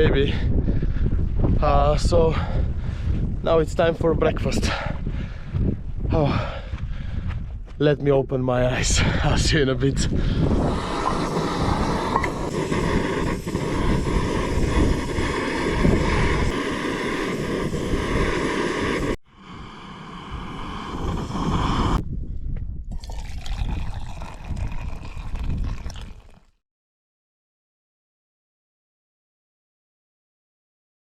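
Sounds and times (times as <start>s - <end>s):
wind and rain rushing: 9.1s - 22.0s, 23.0s - 26.2s.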